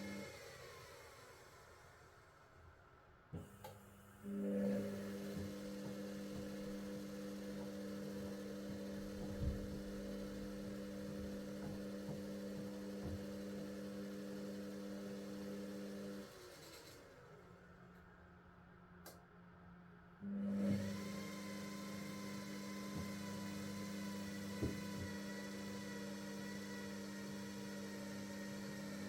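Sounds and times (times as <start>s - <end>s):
washing machine humming: 4.3s - 16.3s, 20.5s - 29.0s
soft knocks: 9.2s - 10.0s.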